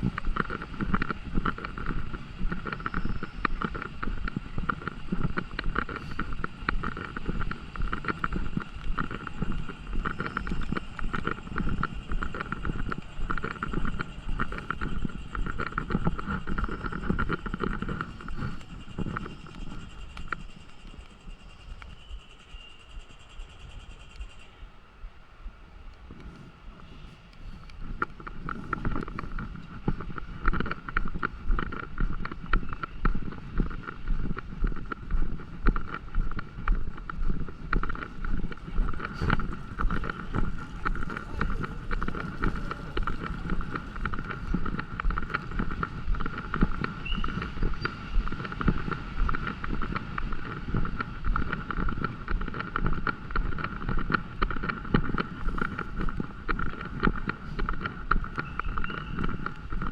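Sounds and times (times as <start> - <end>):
steady high hum: 0.0 - 59.9
footsteps walking: 27.4 - 59.9.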